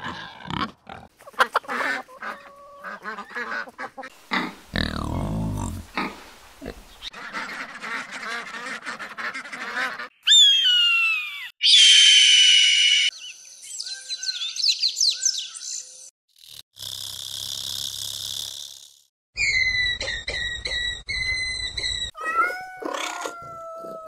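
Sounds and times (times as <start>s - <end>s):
shrill bird call: 10.1s - 15.9s, 19.4s - 22.6s
bird chirps: 10.1s - 16.1s, 19.4s - 22.2s
loud falling bird whistles: 10.2s - 13.1s.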